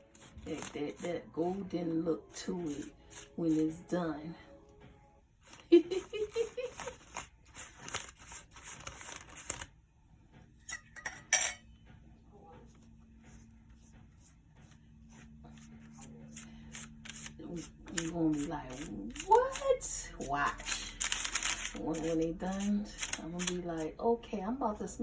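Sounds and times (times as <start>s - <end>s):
utensils clattering against dishes: 10.6s - 11.7s.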